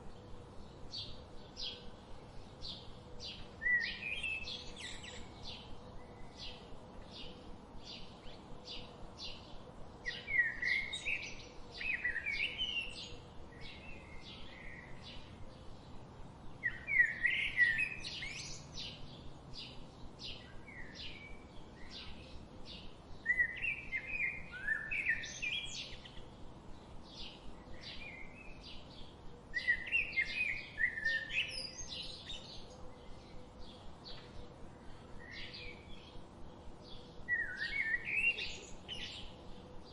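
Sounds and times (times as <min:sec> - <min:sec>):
bird singing varied phrases: 0:02.7 - 0:06.6, 0:19.6 - 0:26.4, 0:27.2 - 0:34.2, 0:37.0 - 0:39.9.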